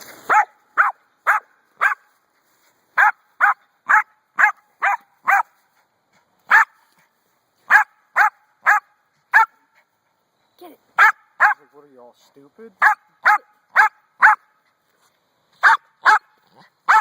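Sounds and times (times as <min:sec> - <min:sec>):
dog barking: 0:00.3 - 0:02.1, 0:03.0 - 0:05.6, 0:06.5 - 0:06.8, 0:07.7 - 0:09.7, 0:11.0 - 0:11.7, 0:12.8 - 0:14.5, 0:15.6 - 0:17.0.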